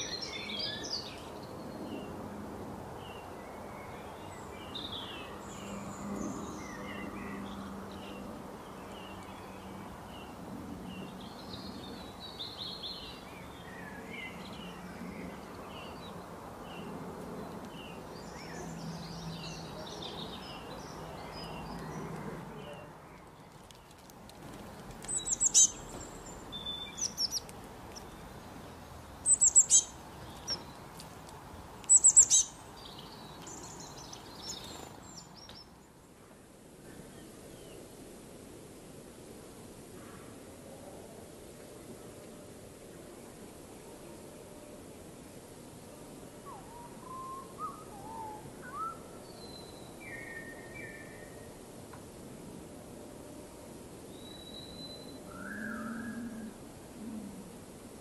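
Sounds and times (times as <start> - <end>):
birds chirping: 0.0 - 2.3, 3.0 - 36.1
loud sharp bird chirps: 25.1 - 27.4, 29.2 - 30.6, 31.9 - 32.6.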